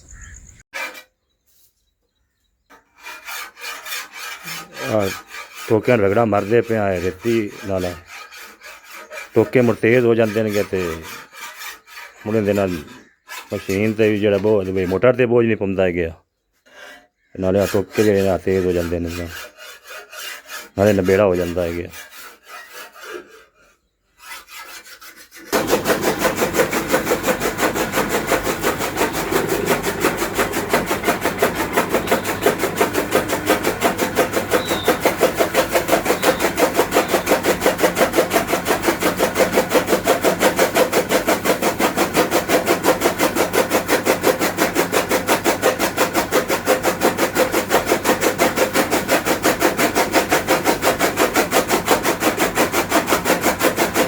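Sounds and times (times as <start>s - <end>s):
blades rubbing against file: 0.7s - 1.8s, 2.7s - 15.9s, 16.6s - 54.0s
chaff cutter running: 3.7s - 11.4s, 25.5s - 54.0s.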